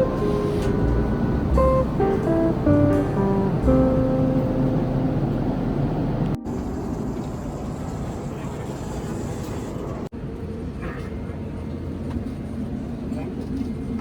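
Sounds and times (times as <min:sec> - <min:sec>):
vehicle ride rumble: 0:00.0 - 0:10.1.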